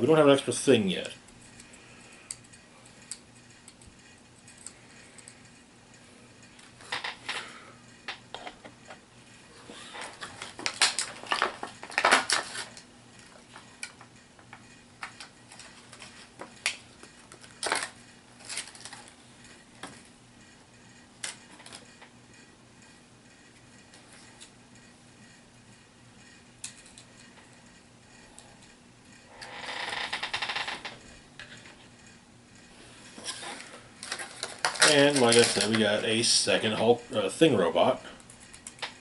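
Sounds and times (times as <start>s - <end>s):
plastic pieces clicking and clattering: 10.0s - 12.8s, 15.0s - 19.1s, 33.3s - 36.0s.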